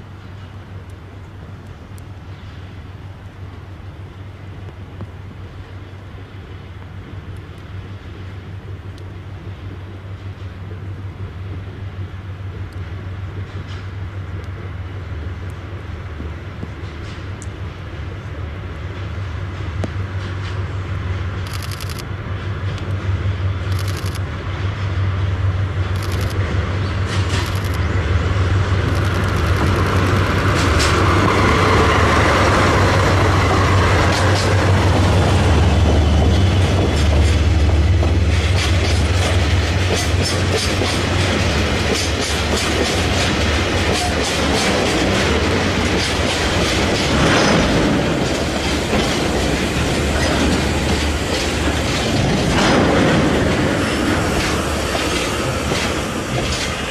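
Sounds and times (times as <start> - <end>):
diesel locomotive engine drone: 0.0 - 56.9
train wheels clicking over rail joints: 18.8 - 24.9, 25.7 - 56.9.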